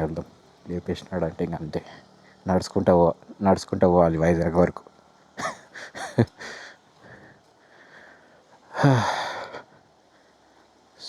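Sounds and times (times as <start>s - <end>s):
breathy sigh: 5.8s - 9.7s.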